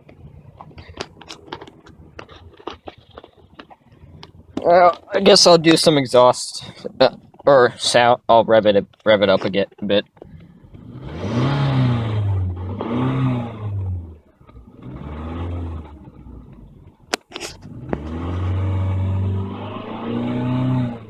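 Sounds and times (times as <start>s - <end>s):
car engine revving: 10.3s - 21.0s.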